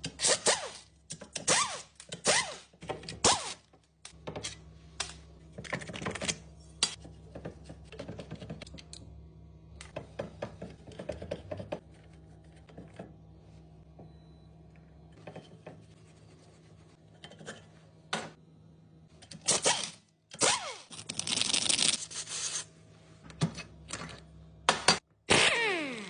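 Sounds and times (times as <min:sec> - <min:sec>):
low steady hum: 0:02.0 - 0:19.6.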